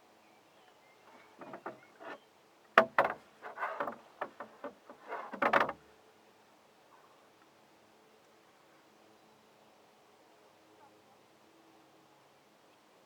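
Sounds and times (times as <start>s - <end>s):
paddle knocking against canoe: 1.1s - 2.2s, 2.8s - 5.8s
paddle splashing in water: 2.8s - 5.8s.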